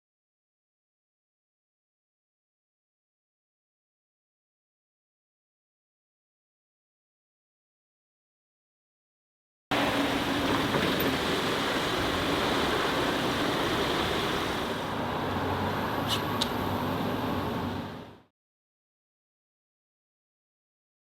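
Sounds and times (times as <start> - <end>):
car engine and road noise: 9.7 - 18.3.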